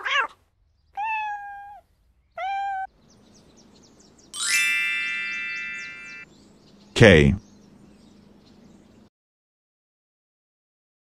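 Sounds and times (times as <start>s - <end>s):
kitten meowing: 1.0s - 1.8s, 2.4s - 2.9s
bright shimmering chime: 4.4s - 6.3s.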